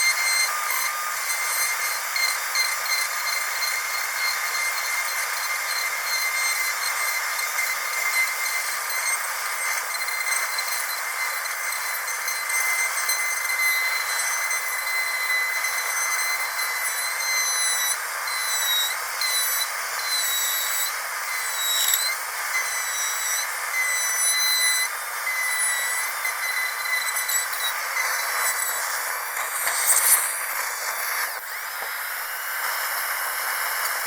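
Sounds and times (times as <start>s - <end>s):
dentist's drill whining: 0.0s - 34.0s
hiss: 0.2s - 34.0s.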